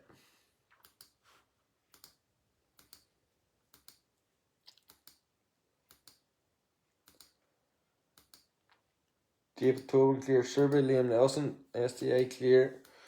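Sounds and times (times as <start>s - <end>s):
computer mouse clicking: 0.8s - 1.2s, 1.9s - 2.2s, 2.8s - 3.1s, 3.7s - 4.1s, 4.7s - 5.3s, 5.9s - 6.3s, 7.0s - 7.4s, 8.2s - 8.6s.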